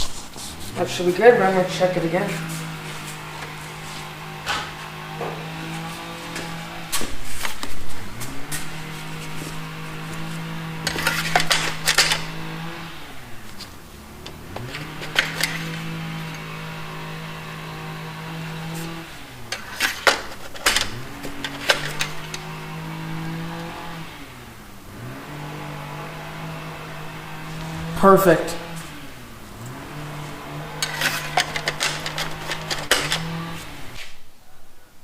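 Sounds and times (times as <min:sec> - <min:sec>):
engine running at high speed: 0:00.0 - 0:34.1
handling clicks and clatters: 0:10.1 - 0:12.5, 0:13.4 - 0:17.2, 0:18.5 - 0:22.8, 0:30.6 - 0:33.9.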